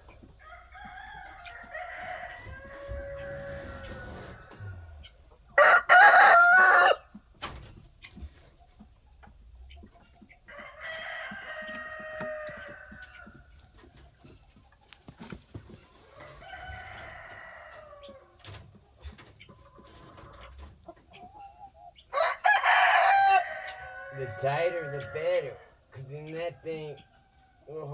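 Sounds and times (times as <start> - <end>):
roosters crowing: 0.0 - 7.2, 10.4 - 14.2, 16.0 - 18.7, 22.0 - 27.9.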